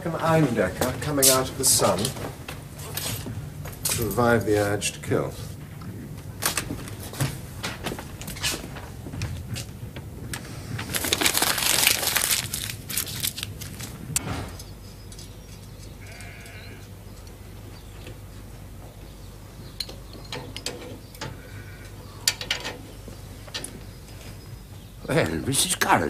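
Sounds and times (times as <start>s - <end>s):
sheep bleating: 16.0s - 16.8s.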